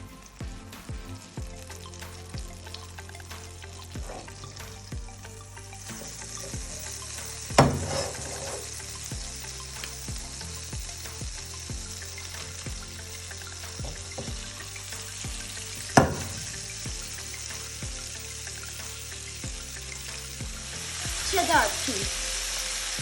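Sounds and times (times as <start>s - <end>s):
background music with steady beat: 0.0s - 23.0s
patties sizzling in a pan: 0.0s - 23.0s.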